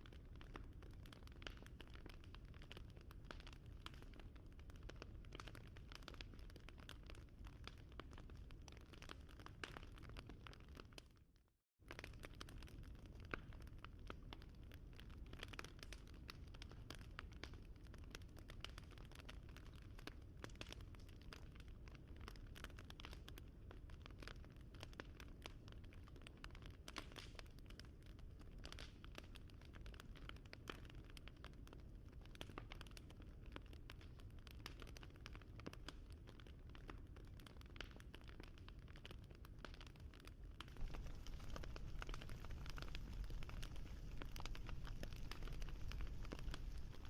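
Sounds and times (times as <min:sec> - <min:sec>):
wood fire crackling: 0:32.3 - 0:47.0
low rumble: 0:40.8 - 0:47.0.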